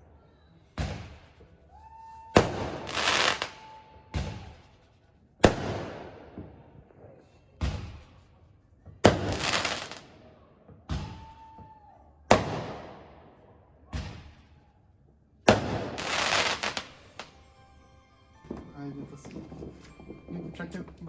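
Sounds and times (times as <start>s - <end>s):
crackling of fireworks: 0.1s - 14.8s, 15.4s - 21.0s
high firework whistle: 1.8s - 4.4s
fireworks exploding: 2.4s - 4.6s, 9.0s - 10.0s, 15.5s - 21.0s.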